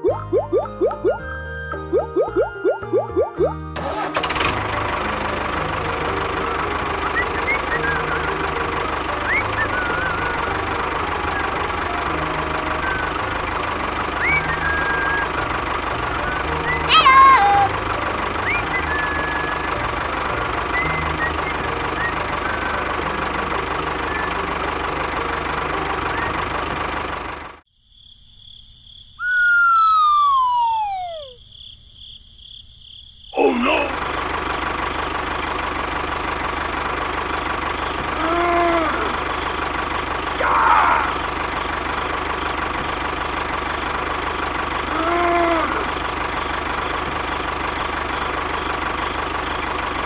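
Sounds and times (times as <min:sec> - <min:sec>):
tractor engine running: 0:00.0 - 0:27.6, 0:33.4 - 0:50.0
whistle sliding down in pitch: 0:29.2 - 0:31.4.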